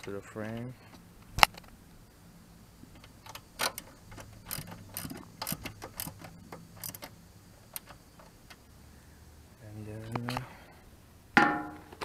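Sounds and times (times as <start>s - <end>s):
ratchet wrench clicking: 3.0s - 8.6s.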